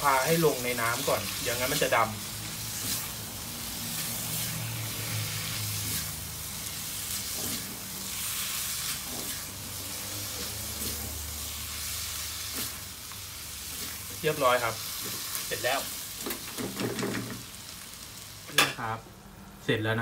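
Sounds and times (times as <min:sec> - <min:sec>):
food sizzling in a pan: 0:00.0 - 0:19.0
spatula scraping a pan: 0:00.9 - 0:12.9.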